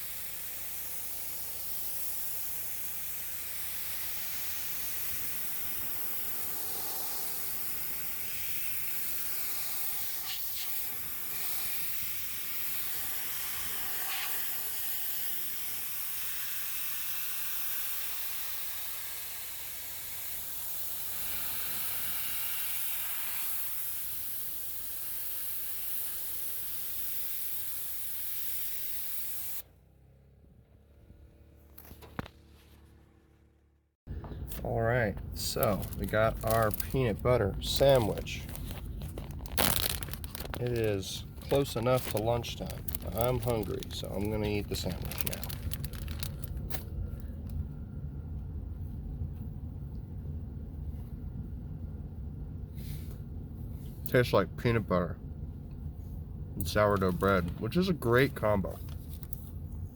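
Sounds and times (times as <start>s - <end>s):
pressure washer spray hissing: 0.0s - 29.6s.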